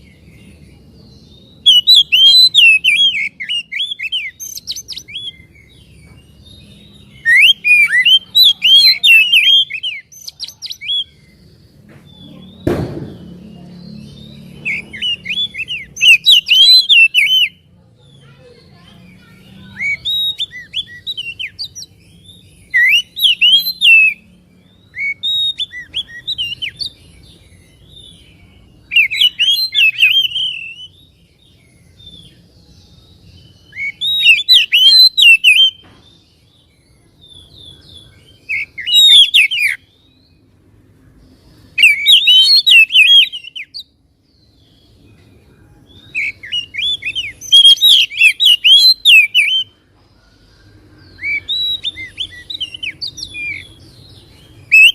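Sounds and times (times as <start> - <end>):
bird singing whistles and twitters: 0.0 - 17.7, 18.4 - 40.5, 41.6 - 49.8, 50.6 - 54.9.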